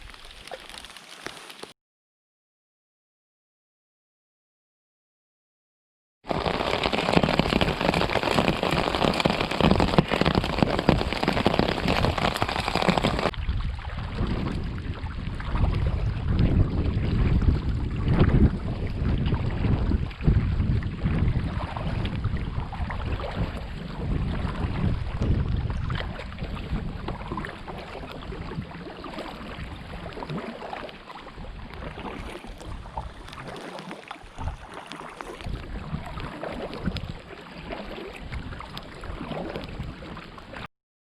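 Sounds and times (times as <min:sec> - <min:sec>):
rain hissing: 0:06.3 - 0:13.3
wind buffeting microphone: 0:07.3 - 0:30.2, 0:35.4 - 0:37.2.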